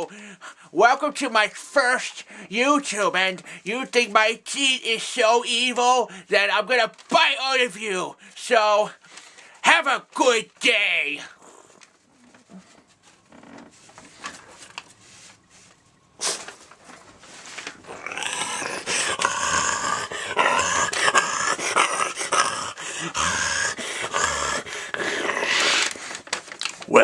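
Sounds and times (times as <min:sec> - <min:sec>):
paper rustling: 0:06.4 - 0:08.0, 0:09.0 - 0:23.4, 0:24.0 - 0:27.0
person growling like an animal: 0:17.8 - 0:26.0.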